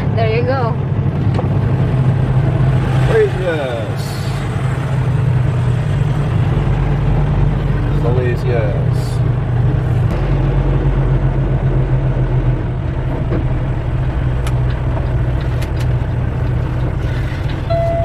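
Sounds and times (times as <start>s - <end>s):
diesel truck engine droning: 0.0s - 18.0s
steady beep: 17.7s - 18.0s.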